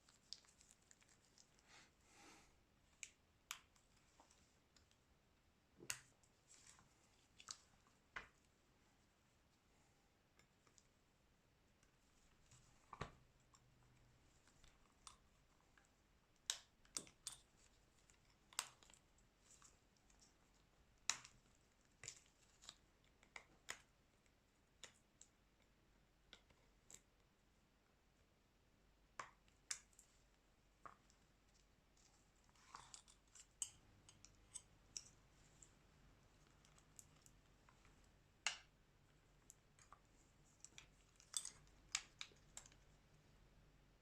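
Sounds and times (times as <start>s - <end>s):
small clicks and taps of tools: 5.8s - 8.5s, 15.8s - 27.3s, 30.8s - 35.8s, 36.4s - 43.0s.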